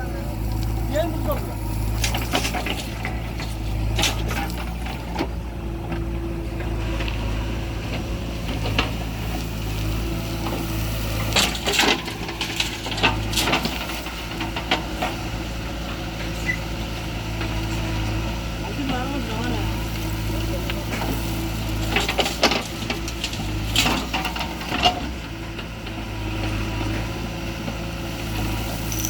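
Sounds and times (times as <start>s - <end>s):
diesel engine running: 0.0s - 29.0s
knocks and clatters: 1.3s - 7.2s.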